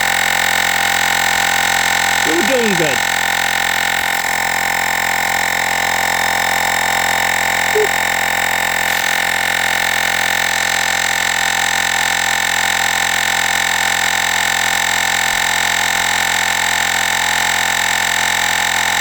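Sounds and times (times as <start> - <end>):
air compressor running: 8.5 - 12.6.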